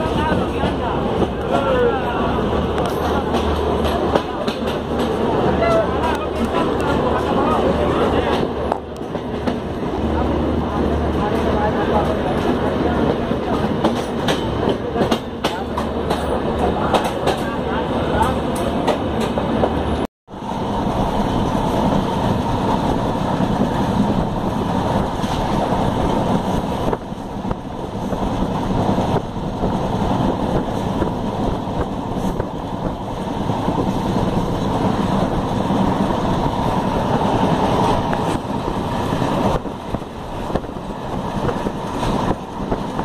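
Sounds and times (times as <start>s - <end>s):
train wheels rumbling on rails: 0.0s - 43.0s
wind on microphone: 19.5s - 43.0s.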